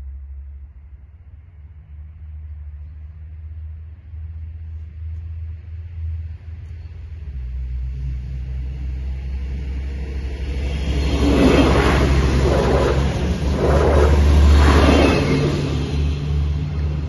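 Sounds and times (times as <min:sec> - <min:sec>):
diesel railcar rumble: 0:00.0 - 0:17.0.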